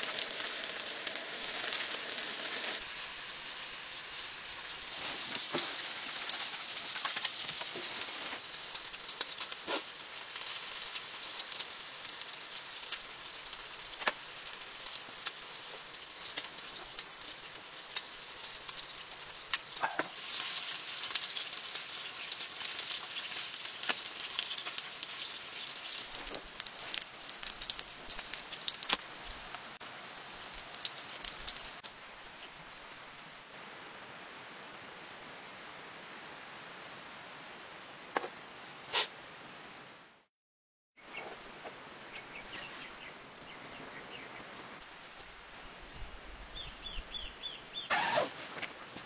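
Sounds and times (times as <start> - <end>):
heavy rain hissing: 0.0 - 6.9
food sizzling in a pan: 0.0 - 33.5.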